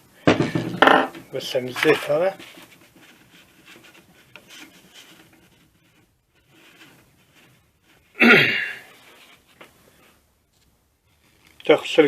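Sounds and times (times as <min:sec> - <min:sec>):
faint handling noise: 0:00.4 - 0:08.2, 0:08.9 - 0:12.0
person sneezing: 0:08.2 - 0:08.9.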